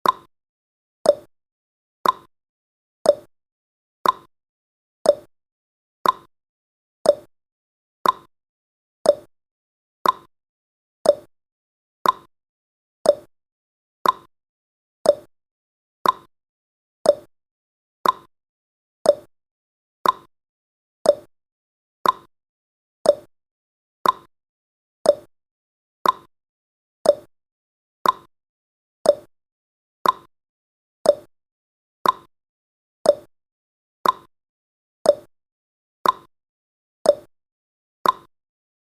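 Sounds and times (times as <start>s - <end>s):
timer clicks: 0.0s - 0.3s, 1.0s - 1.3s, 2.0s - 2.3s, 3.0s - 3.3s, 4.0s - 4.3s, 5.0s - 5.3s, 6.0s - 6.3s, 7.0s - 7.3s, 8.0s - 8.3s, 9.0s - 9.3s, 10.0s - 10.3s, 11.0s - 11.3s, 12.0s - 12.3s, 13.0s - 13.3s, 14.0s - 14.3s, 15.0s - 15.3s, 16.0s - 16.3s, 17.0s - 17.3s, 18.0s - 18.3s, 19.0s - 19.3s, 20.0s - 20.3s, 21.0s - 21.3s, 22.0s - 22.3s, 23.0s - 23.3s, 24.0s - 24.3s, 25.0s - 25.3s, 26.0s - 26.3s, 27.0s - 27.3s, 28.0s - 28.3s, 29.0s - 29.3s, 30.0s - 30.3s, 31.0s - 31.3s, 32.0s - 32.3s, 33.0s - 33.3s, 34.0s - 34.3s, 35.0s - 35.3s, 36.0s - 36.3s, 37.0s - 37.3s, 38.0s - 38.3s.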